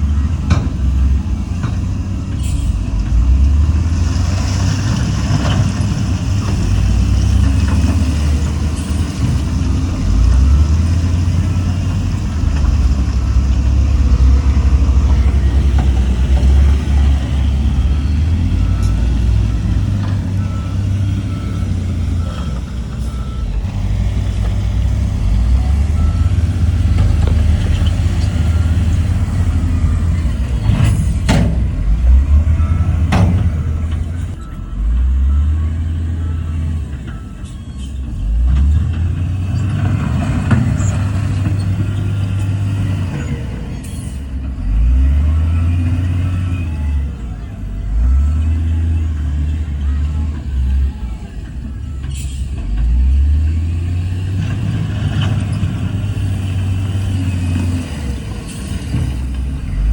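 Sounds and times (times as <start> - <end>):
diesel machinery engine revving: 0.0 - 59.9
reversing alarm beeping: 12.6 - 38.4, 42.4 - 59.9.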